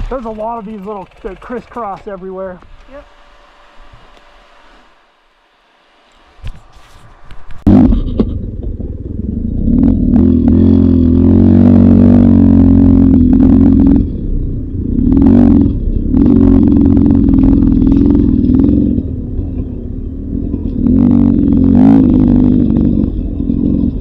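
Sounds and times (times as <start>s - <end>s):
clatter: 0.0s - 3.0s, 6.4s - 24.0s
dirt bike engine revving: 7.5s - 24.0s.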